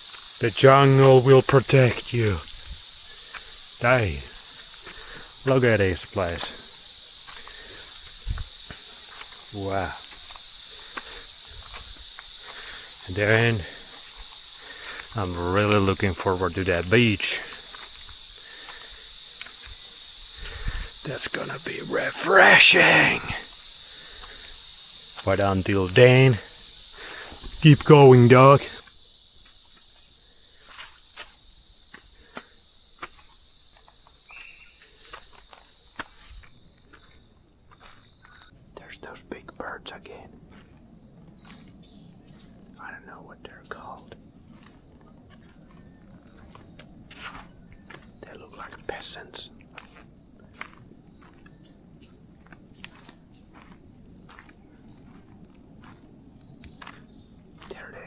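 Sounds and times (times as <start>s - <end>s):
high-pitched insect chorus: 0.0s - 36.4s, 38.8s - 58.0s
footsteps on dry trail: 6.7s - 13.0s, 36.9s - 38.5s, 40.5s - 42.0s, 44.4s - 48.9s, 49.8s - 58.0s.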